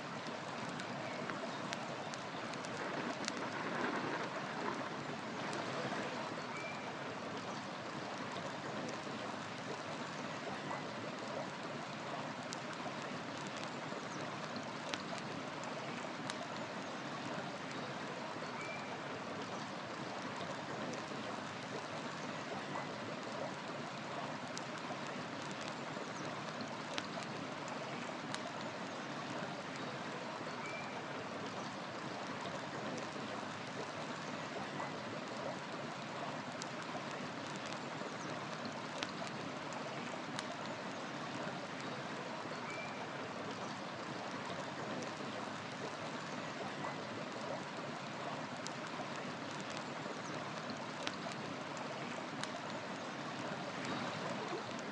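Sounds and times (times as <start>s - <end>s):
river water rushing: 0.0s - 54.9s
firewood crackling: 0.1s - 6.4s, 7.0s - 18.4s, 23.1s - 29.8s, 35.6s - 42.4s, 47.3s - 54.9s
faint bird chirps: 6.4s - 7.0s, 18.4s - 19.8s, 29.8s - 31.8s, 42.5s - 44.0s.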